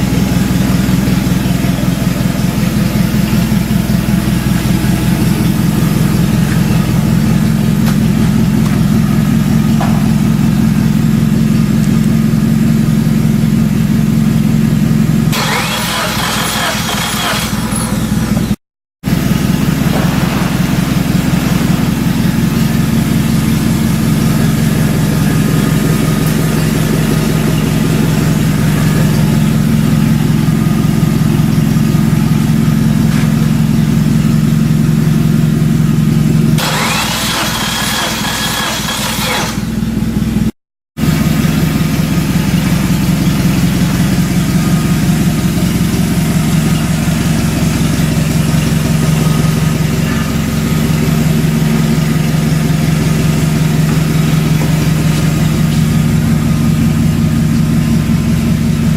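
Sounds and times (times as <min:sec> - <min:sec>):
car engine idling: 0:00.0 - 0:58.9.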